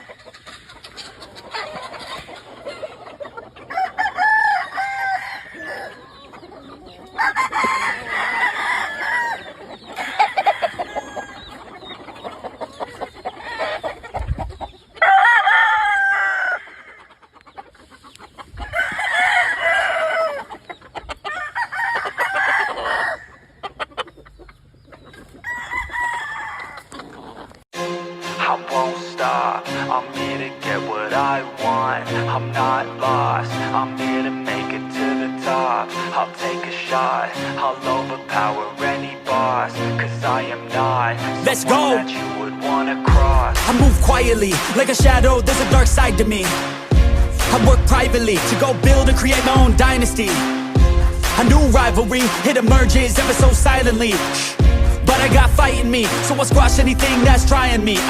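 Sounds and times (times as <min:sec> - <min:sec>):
roosters crowing: 0:00.0 - 0:27.6
chickens clucking: 0:00.0 - 0:27.7, 0:28.8 - 0:58.0.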